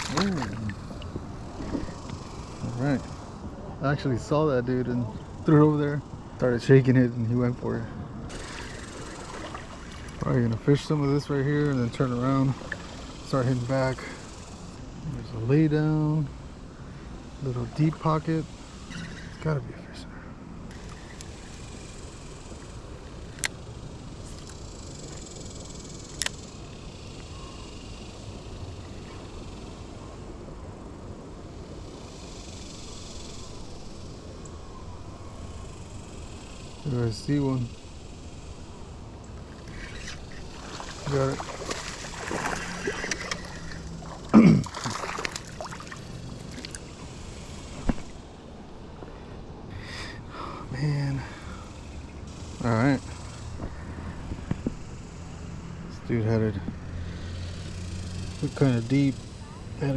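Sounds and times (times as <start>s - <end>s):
river water rushing: 0.0s - 1.6s, 8.3s - 10.6s, 39.7s - 47.1s
wind: 0.0s - 59.9s.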